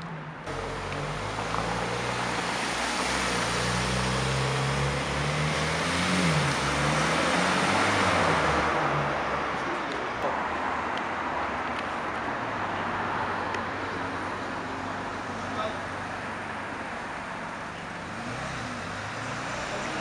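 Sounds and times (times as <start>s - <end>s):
car engine pulling away: 0.5s - 9.4s, 17.2s - 20.0s.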